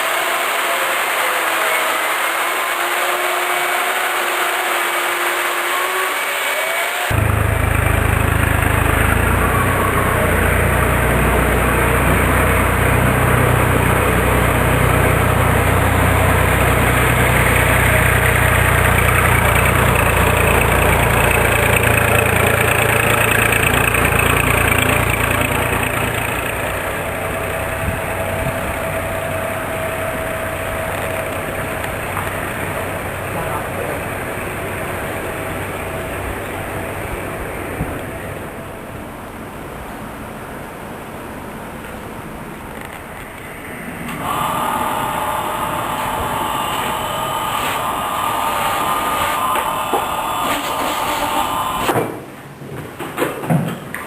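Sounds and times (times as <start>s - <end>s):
motor humming: 0.4s - 38.4s, 43.4s - 52.0s.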